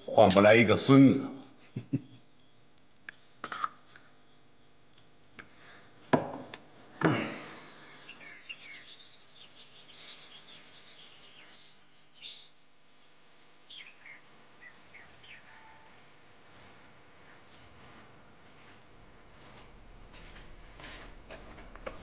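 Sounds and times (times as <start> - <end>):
small birds chirping: 7.5 - 12.7, 13.6 - 15.9.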